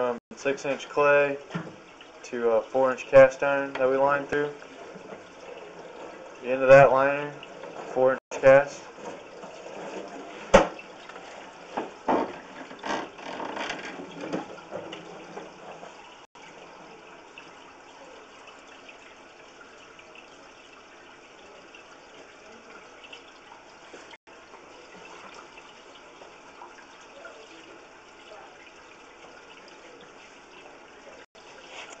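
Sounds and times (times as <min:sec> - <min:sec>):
running water hissing: 0:00.0 - 0:32.0
knocks and clatters: 0:08.9 - 0:16.0.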